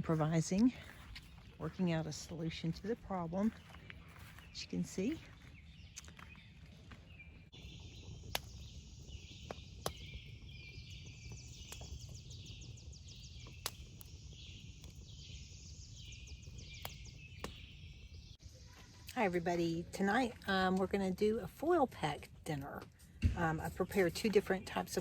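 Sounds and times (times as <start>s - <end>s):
bird chirping: 0.0s - 20.6s
sharp clicks: 8.2s - 8.8s, 9.4s - 12.5s, 13.4s - 14.2s.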